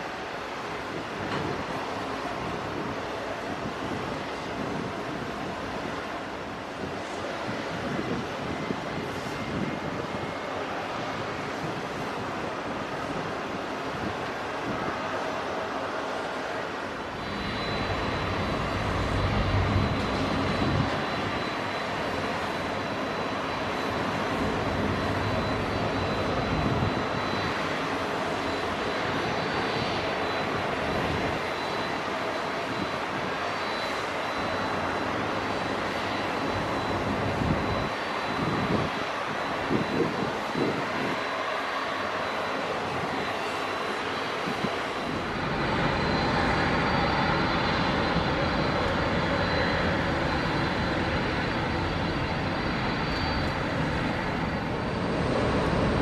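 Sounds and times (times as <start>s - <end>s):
faint high whine: 0.0s - 56.0s
jet engines running: 0.0s - 56.0s.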